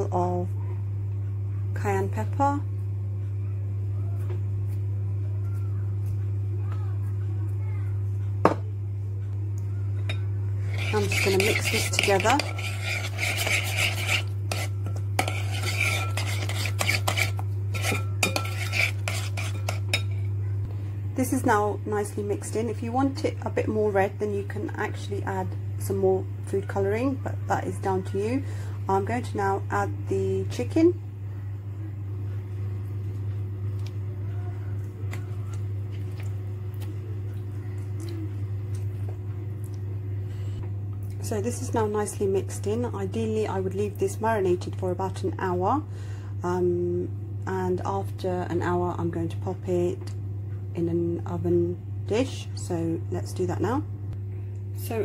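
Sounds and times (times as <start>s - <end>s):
steady low hum: 0.0s - 55.0s
spoon clinking and scraping bowl: 10.1s - 20.3s.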